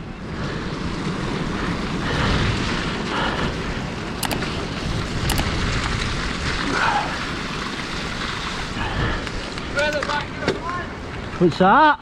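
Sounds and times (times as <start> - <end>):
wind buffeting microphone: 0.0 - 11.4
sharp clicks: 4.1 - 5.6.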